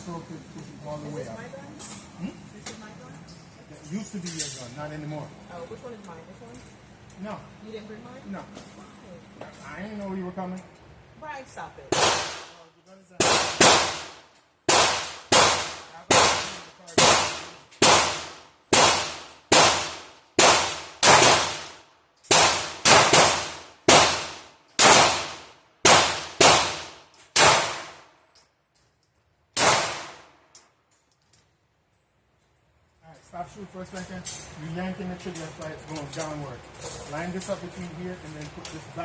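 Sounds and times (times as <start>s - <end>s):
handgun shots echoing: 11.9s - 12.6s, 13.2s - 14.1s, 14.7s - 28.0s, 29.6s - 30.3s.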